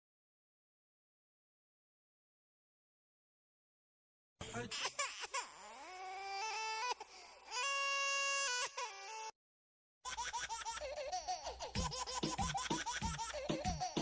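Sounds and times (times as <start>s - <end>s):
baby giggling: 10.1s - 14.0s.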